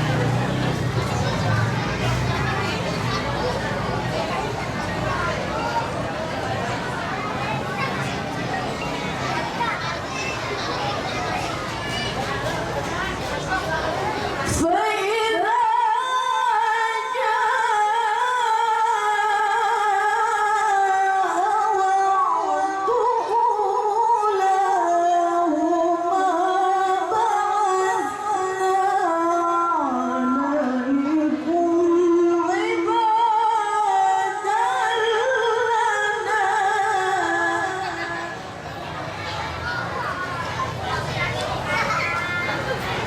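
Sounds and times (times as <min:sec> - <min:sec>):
woman reciting melodically: 0:14.4 - 0:38.6.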